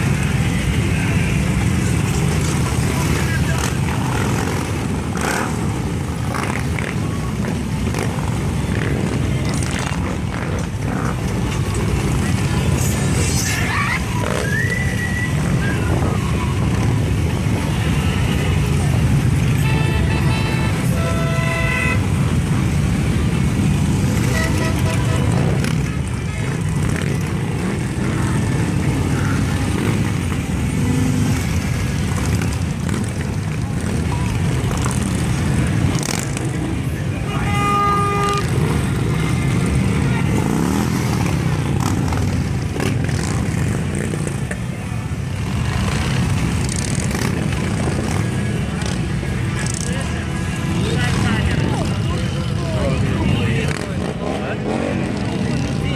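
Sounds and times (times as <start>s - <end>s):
motorcycles rumbling: 0.0s - 55.9s
horns tooting: 13.4s - 33.1s, 33.8s - 44.4s.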